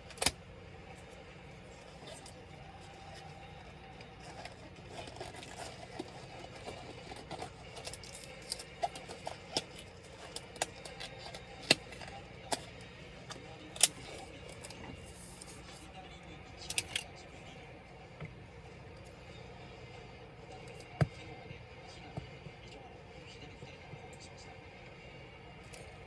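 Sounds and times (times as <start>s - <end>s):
laptop parts and tools clicking: 0.0s - 0.4s, 1.6s - 15.9s, 16.6s - 17.1s.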